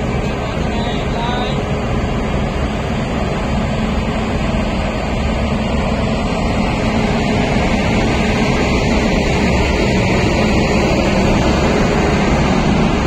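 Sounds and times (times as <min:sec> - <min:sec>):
train rumbling on track: 0:00.0 - 0:13.0.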